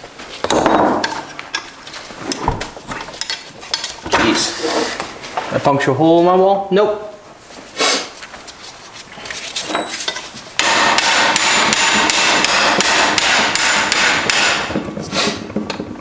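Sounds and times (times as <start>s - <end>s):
hammer on metal: 10.6s - 14.7s.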